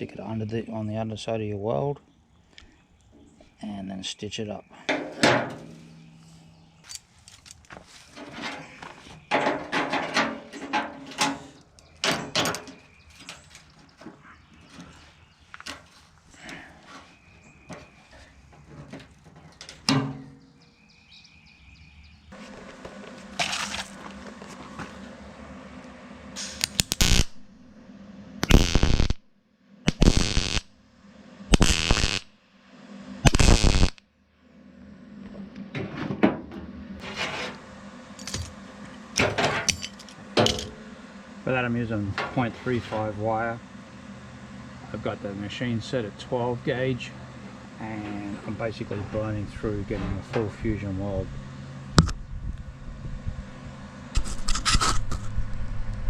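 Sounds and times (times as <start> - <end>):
welder arc crackle and buzz: 22.4 - 35.8, 36.8 - 56.0
welder bursts on sheet metal: 26.4 - 27.4, 28.4 - 29.2, 29.9 - 30.7, 31.5 - 32.3, 33.2 - 34.0.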